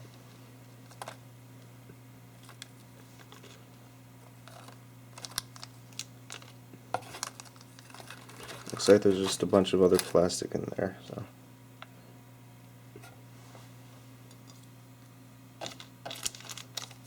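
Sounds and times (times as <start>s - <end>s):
steady low hum: 0.0s - 17.0s
plastic packaging clicks and rustles: 4.4s - 10.4s, 15.6s - 17.0s.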